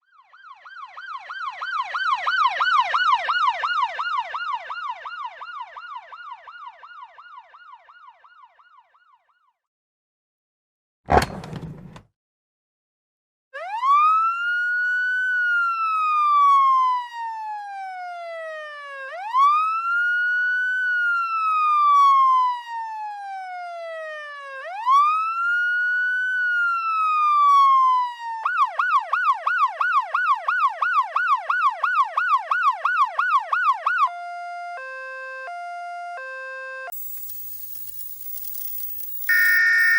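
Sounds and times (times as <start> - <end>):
electronic ambulance siren: 36.9 - 39.9.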